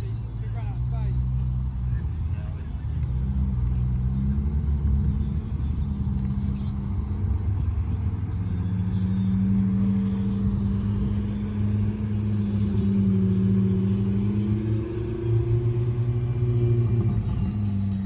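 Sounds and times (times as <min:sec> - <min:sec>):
car engine running at low revs: 0:00.0 - 0:18.0.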